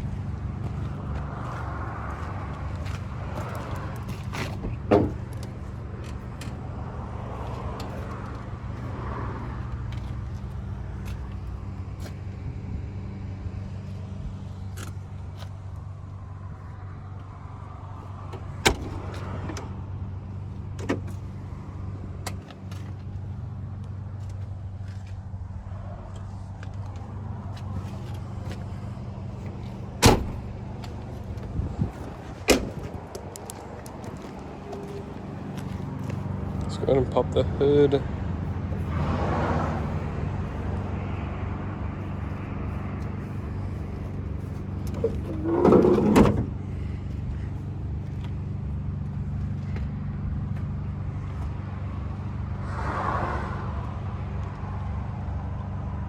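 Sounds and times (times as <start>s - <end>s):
low engine hum: 0.0s - 56.0s
car door clunks: 4.3s - 6.6s, 18.3s - 19.8s, 20.7s - 21.2s, 29.4s - 33.1s, 44.8s - 46.6s.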